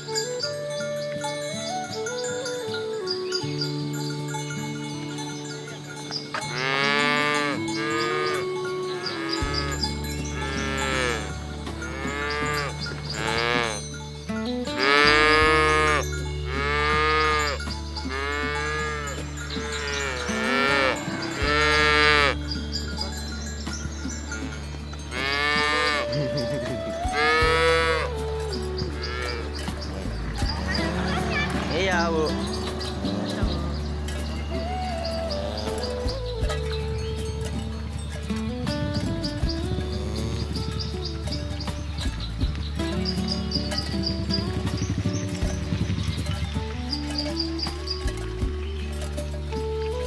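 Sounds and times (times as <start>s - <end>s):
background music with bass: 0.0s - 50.0s
cattle mooing: 6.4s - 13.8s, 14.8s - 22.4s, 24.4s - 36.6s, 39.7s - 41.4s.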